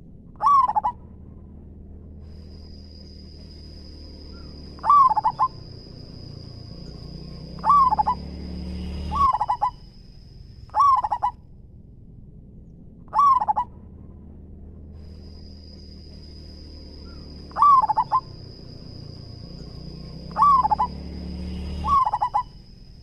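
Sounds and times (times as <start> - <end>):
dove cooing: 0.4 - 1.0, 3.6 - 8.3, 9.0 - 9.9, 10.7 - 11.4, 13.1 - 13.7, 17.1 - 21.0, 21.8 - 22.6.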